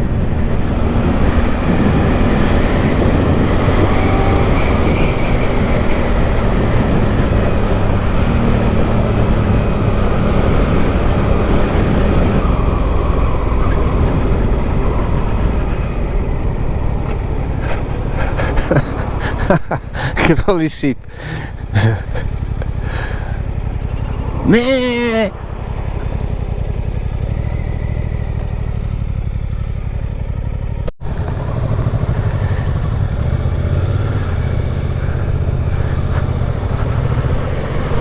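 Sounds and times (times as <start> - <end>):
wind noise on microphone: 0.0 - 20.1
motorcycle engine drone: 0.0 - 38.0.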